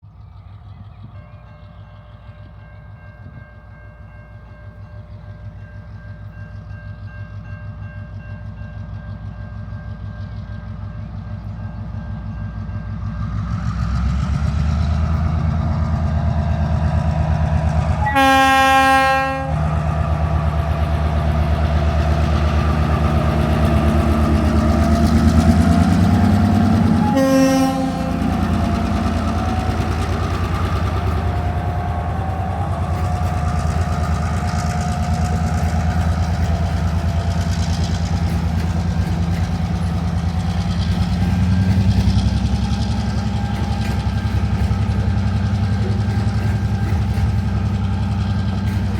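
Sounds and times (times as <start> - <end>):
diesel locomotive engine: 0.0 - 48.9
train horn blasts: 17.8 - 19.9, 26.8 - 28.6.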